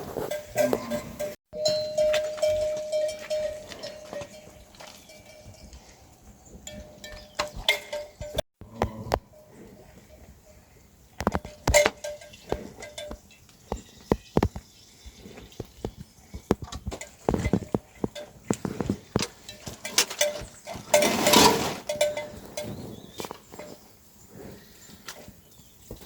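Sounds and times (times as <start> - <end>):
clinks and knocks: 0.1 - 5.9, 6.6 - 9.3, 11.2 - 14.7, 15.5 - 22.7.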